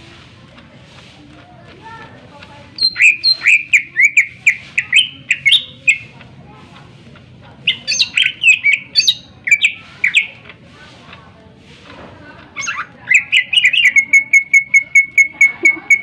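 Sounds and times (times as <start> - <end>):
bird singing sharp repeated notes: 2.8 - 6.1, 7.7 - 10.4, 12.6 - 16.0.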